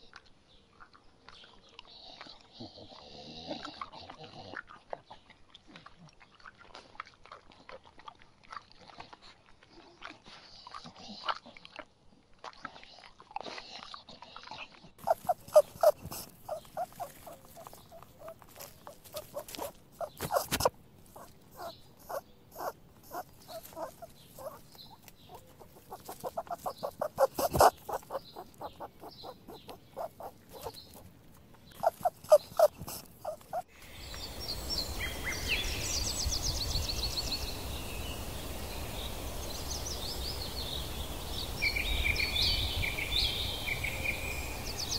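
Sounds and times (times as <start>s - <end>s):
outdoor background noise: 0.0s - 44.9s
dog making short sounds: 15.0s - 31.1s, 31.8s - 33.6s
birds chirping: 15.0s - 44.9s.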